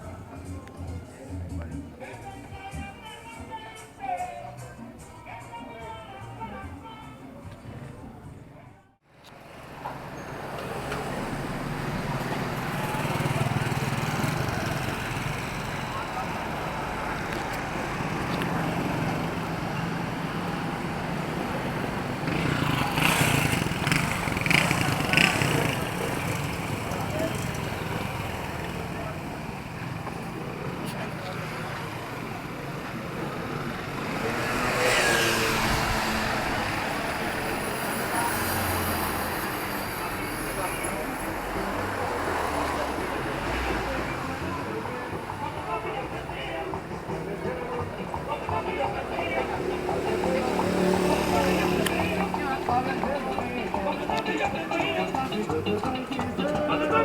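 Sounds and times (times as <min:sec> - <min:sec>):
street noise: 0:00.0 - 0:57.0
vehicle engine approaching: 0:09.4 - 0:57.0
car passing by: 0:09.5 - 0:45.4, 0:49.0 - 0:56.9.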